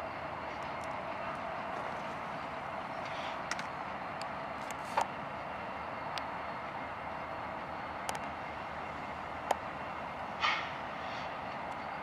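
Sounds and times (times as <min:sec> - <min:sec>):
freight train rolling past: 0:00.0 - 0:12.0
short hiss: 0:10.4 - 0:11.4.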